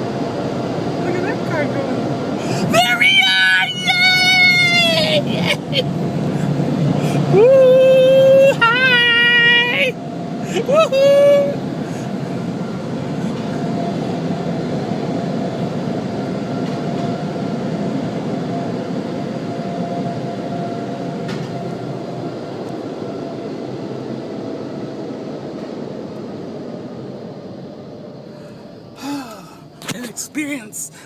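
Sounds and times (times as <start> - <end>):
steady rushing noise: 0.0 - 29.0
faint steady hum: 17.4 - 31.0.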